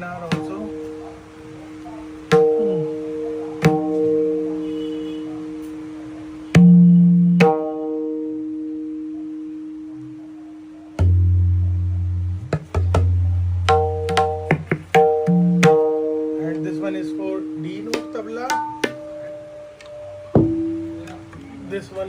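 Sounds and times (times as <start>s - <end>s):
tabla treble drum strokes: 0.0s - 1.0s, 1.8s - 8.6s, 11.0s - 19.5s, 20.3s - 21.4s
deep bass drum tone: 11.0s - 16.1s.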